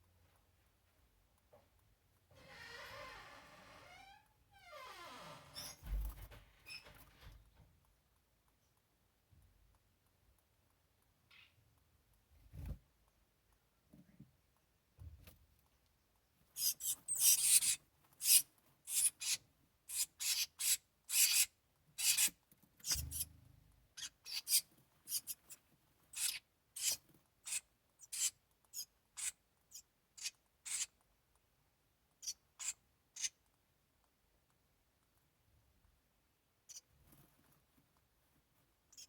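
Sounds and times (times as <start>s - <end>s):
nestlings raspy begging calls: 16.6s - 23.2s, 24.0s - 25.5s, 26.1s - 30.9s, 32.2s - 33.4s.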